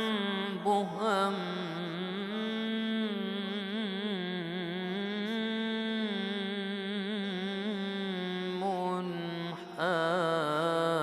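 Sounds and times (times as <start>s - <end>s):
man chanting melismatically: 0.0s - 11.0s.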